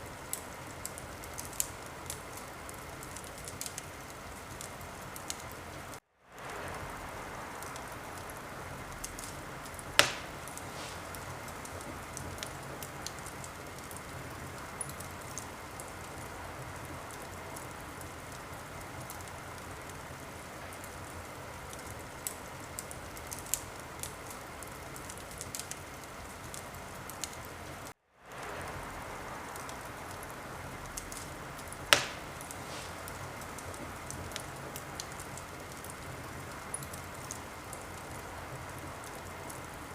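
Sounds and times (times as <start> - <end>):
wood fire crackling: 0.0 - 39.9
sharp loud pops: 10.0 - 11.2, 31.9 - 33.1.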